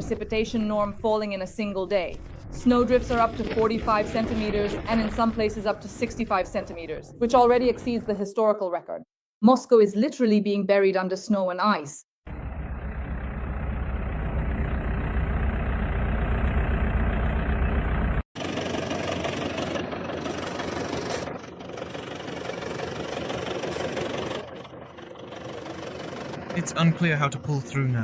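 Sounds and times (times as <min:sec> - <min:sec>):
engine and road noise: 0:12.2 - 0:28.0
vehicle engine idling: 0:12.3 - 0:28.0.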